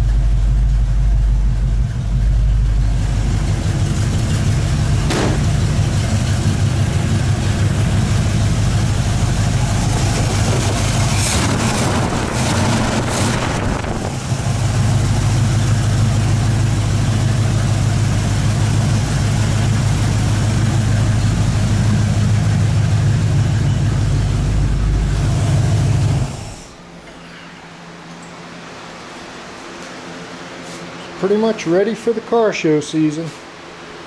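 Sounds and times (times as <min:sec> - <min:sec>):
car engine idling loudly: 0:00.0 - 0:27.0.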